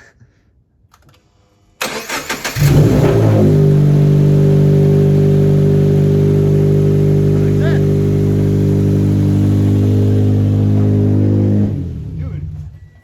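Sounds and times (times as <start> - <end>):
car engine starting and idling: 1.8 - 13.0.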